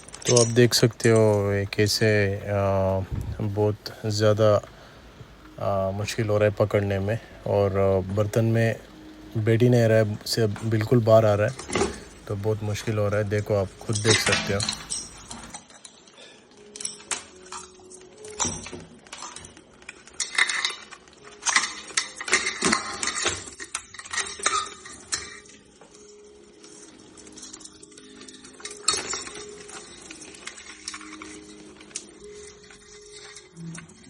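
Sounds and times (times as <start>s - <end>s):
crabs clattering in a pot: 10.3s - 34.0s.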